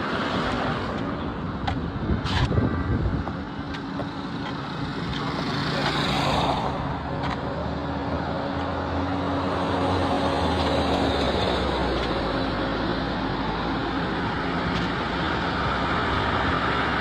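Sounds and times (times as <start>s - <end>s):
road traffic engines: 0.0s - 17.0s.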